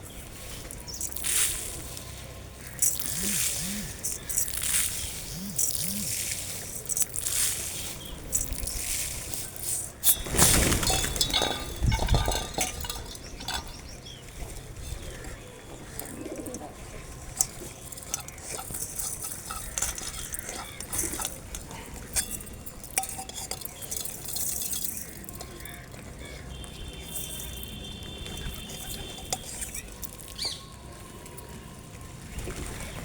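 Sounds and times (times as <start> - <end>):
birds chirping: 0.0 - 32.1
rustling and knocking: 10.1 - 13.9.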